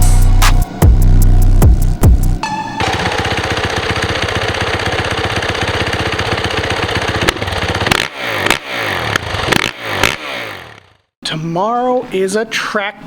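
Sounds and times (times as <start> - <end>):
engine throttle blips: 0.1 - 11.0
dirt bike engine idling: 2.8 - 11.1.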